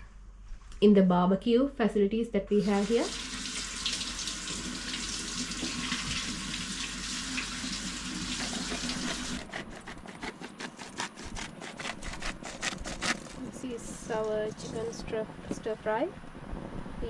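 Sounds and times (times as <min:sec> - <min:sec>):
food sizzling on a hotplate: 0:02.8 - 0:09.1
sharp clicks and scrapes: 0:08.4 - 0:13.5.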